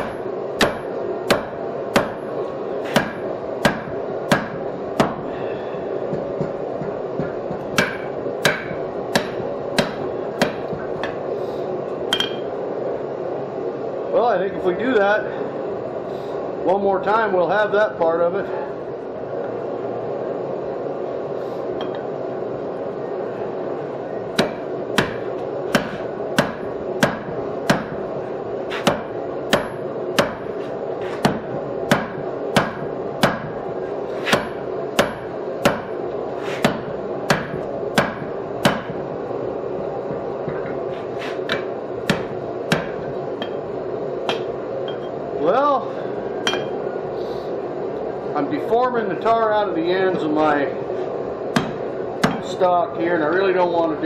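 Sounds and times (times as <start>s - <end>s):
steady background hum: 0.0s - 54.0s.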